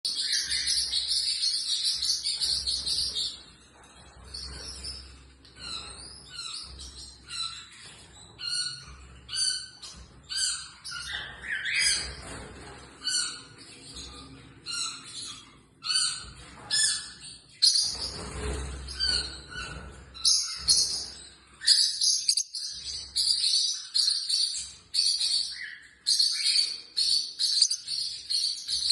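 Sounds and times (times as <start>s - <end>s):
parrot chirping: 20.3s - 28.9s.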